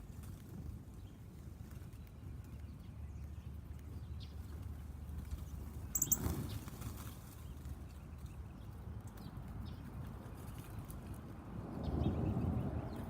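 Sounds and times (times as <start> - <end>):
rustle: 0.0 - 8.5
high-pitched chirps: 6.0 - 6.2.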